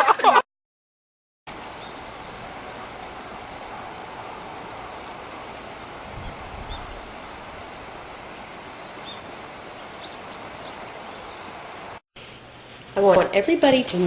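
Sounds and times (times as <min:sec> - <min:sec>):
steady rushing noise: 0:01.5 - 0:12.6.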